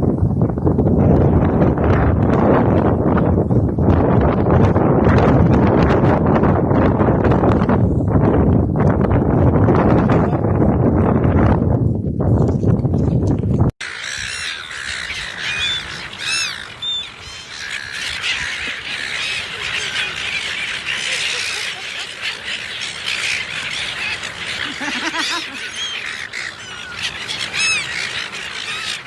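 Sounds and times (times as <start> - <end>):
flock of birds chirping: 13.8 - 29.0
lower bird calls: 13.8 - 29.0.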